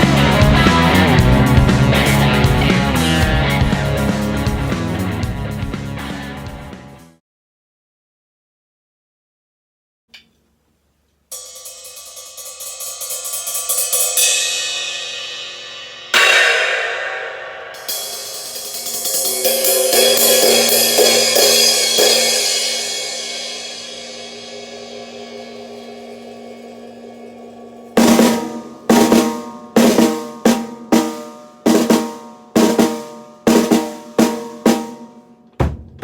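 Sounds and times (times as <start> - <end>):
cymbal crash: 11.3 - 35.4
cymbal roll: 11.3 - 35.4.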